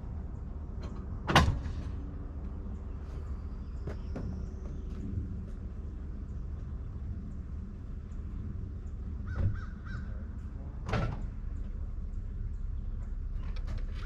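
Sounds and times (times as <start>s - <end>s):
steady low rumble: 0.0s - 14.0s
harsh bird calls: 8.1s - 10.5s.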